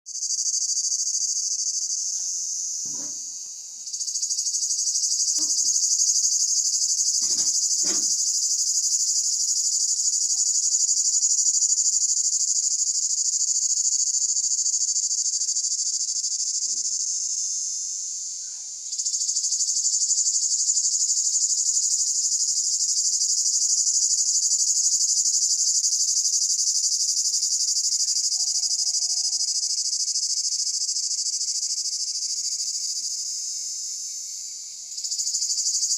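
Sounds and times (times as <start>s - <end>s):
cicadas buzzing: 0.1s - 35.9s.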